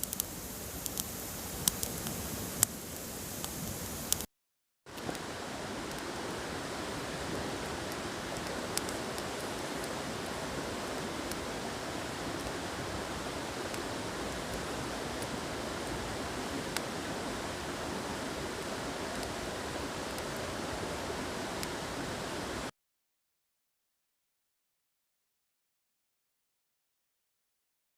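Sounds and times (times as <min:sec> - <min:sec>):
campfire hissing: 0:00.0 - 0:04.3, 0:04.9 - 0:22.7
fire crackles: 0:00.0 - 0:04.3, 0:04.9 - 0:22.7.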